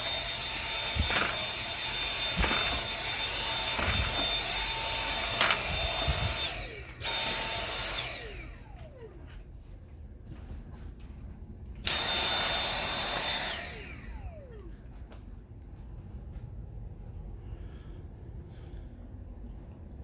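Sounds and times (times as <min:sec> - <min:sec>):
stick vacuum whining: 0:00.0 - 0:09.5, 0:11.8 - 0:15.0.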